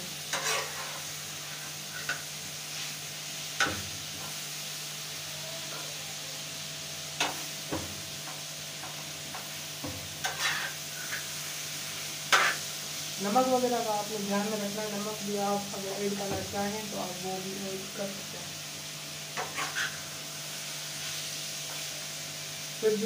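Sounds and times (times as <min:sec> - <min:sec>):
chicken and onions sizzling: 0:00.0 - 0:23.0
metal spatula scraping pan: 0:00.3 - 0:02.3, 0:10.2 - 0:11.4, 0:12.3 - 0:12.6, 0:19.4 - 0:20.0.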